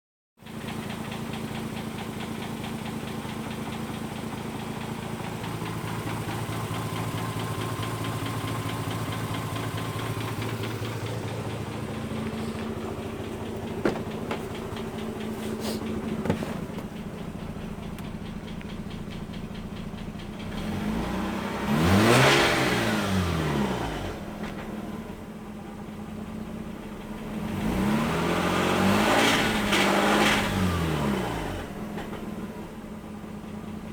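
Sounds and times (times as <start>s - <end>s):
rotary engine idling with knock: 0.4s - 33.9s
engine revving: 5.0s - 25.2s, 27.1s - 32.5s.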